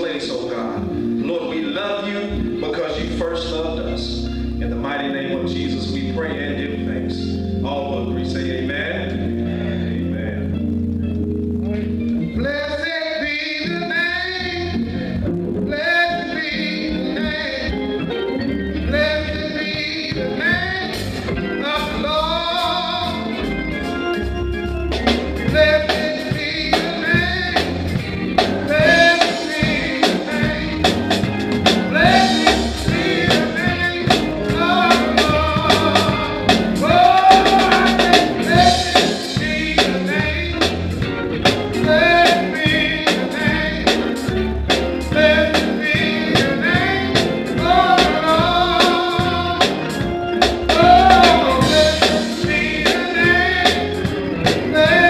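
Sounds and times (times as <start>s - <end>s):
voices singing worship song: 0.0s - 10.7s, 12.3s - 24.2s, 25.1s - 55.0s
bass: 0.0s - 55.0s
keyboard: 0.0s - 55.0s
drums: 19.0s - 55.0s.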